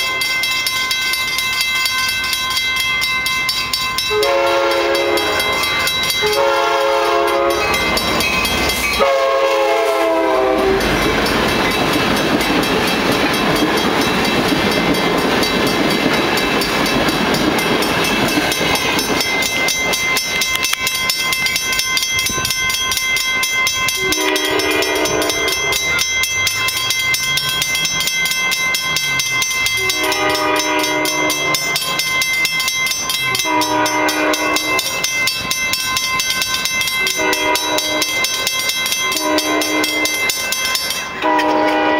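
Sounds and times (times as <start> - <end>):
crossing bells ringing: 0.0 - 41.9
train wheels on rails rushing: 0.0 - 41.9
train air horn blasts: 4.1 - 7.8, 9.0 - 10.9, 24.0 - 25.6, 29.8 - 31.6, 33.4 - 34.8, 37.1 - 38.2, 39.1 - 40.1, 41.2 - 41.9.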